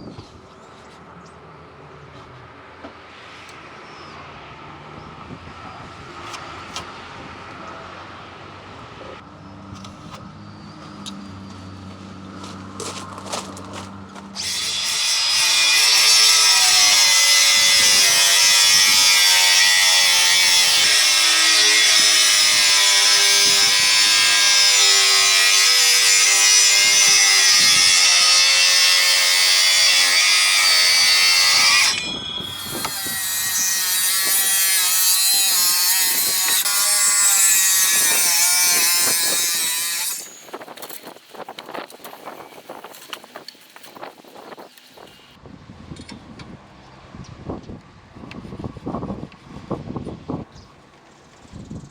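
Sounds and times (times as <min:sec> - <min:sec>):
power saw cutting timber: 0:12.4 - 0:41.9.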